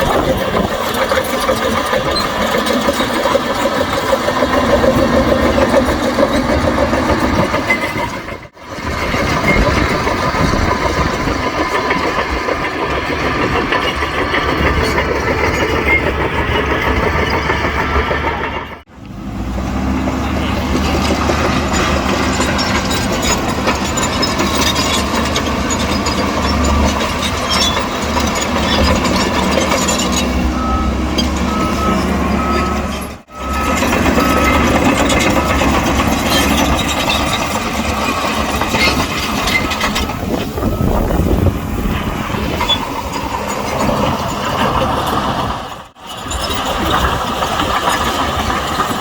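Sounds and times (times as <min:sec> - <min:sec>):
heavy earthmoving machinery running: 0:00.0 - 0:49.0
reversing alarm beeping: 0:28.7 - 0:37.6, 0:39.5 - 0:41.5.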